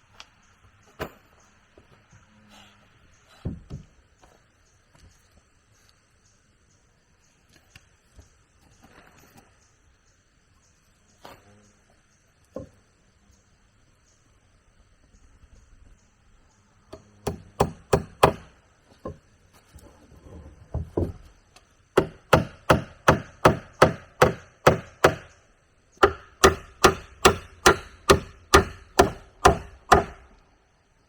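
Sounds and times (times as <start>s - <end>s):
tool striking wood: 16.9s - 19.2s, 22.0s - 25.4s, 26.0s - 30.4s.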